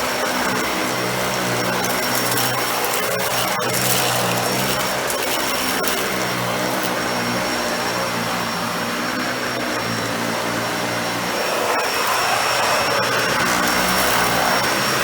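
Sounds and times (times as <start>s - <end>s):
upright vacuum running: 0.9s - 8.2s, 13.1s - 15.0s.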